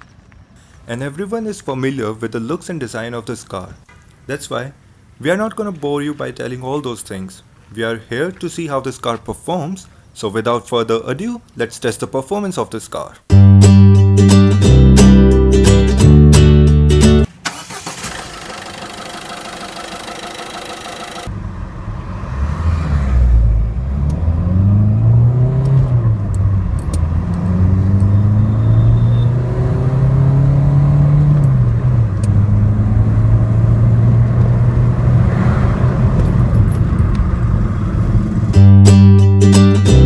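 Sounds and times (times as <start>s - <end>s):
car engine accelerating hard: 18.0s - 38.6s
road and wind rumble: 21.3s - 38.6s.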